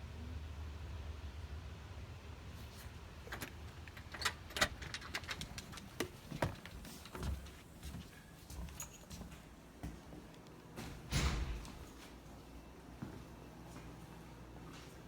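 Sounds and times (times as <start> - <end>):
metal clinking: 3.2 - 7.6.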